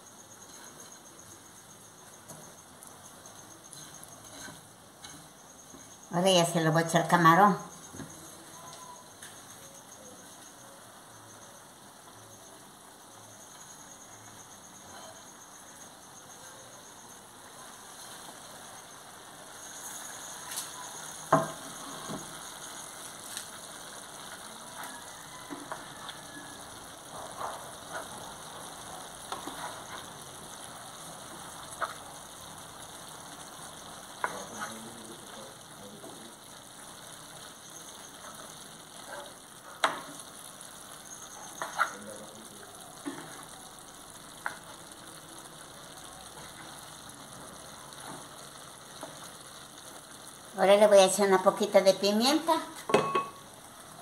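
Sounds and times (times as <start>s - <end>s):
food sizzling in a metal pan: 0.0s - 54.0s
wooden spoon scraping a pan: 0.4s - 1.3s, 3.4s - 6.0s, 17.7s - 18.5s, 24.2s - 30.5s, 34.2s - 34.9s, 41.2s - 42.0s
spoon knocking against a pan: 21.2s - 22.3s, 52.9s - 53.4s.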